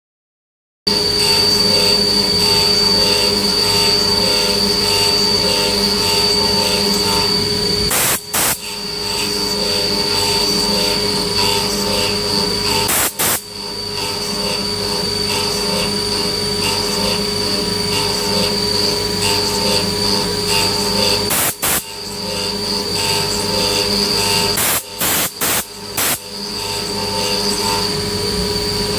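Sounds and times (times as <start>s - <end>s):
milling machine whine: 0.9s - 28.9s.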